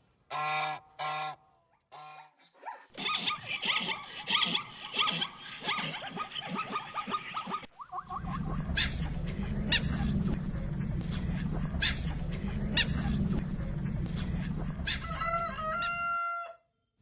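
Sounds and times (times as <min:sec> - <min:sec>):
low rumble: 0:08.1 - 0:15.9.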